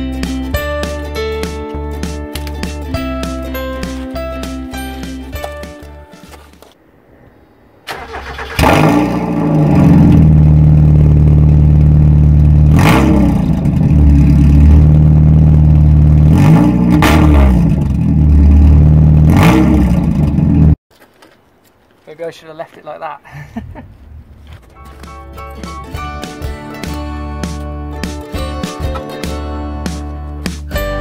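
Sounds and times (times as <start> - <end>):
loud car engine revving: 8.0 - 20.8.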